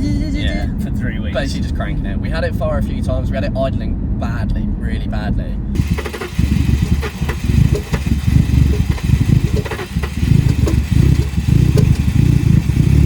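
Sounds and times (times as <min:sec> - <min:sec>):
car engine idling roughly: 0:05.8 - 0:13.0.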